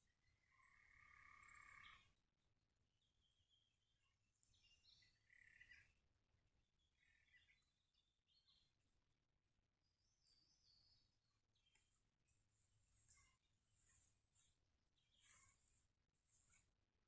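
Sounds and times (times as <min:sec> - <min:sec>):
faint animal calls: 0:00.2 - 0:02.2, 0:05.1 - 0:06.0, 0:15.1 - 0:16.6.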